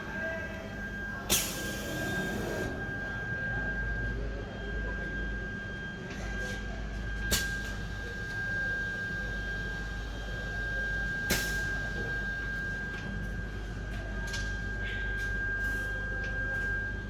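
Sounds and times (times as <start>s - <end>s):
cutting machine whine: 0.0s - 6.0s.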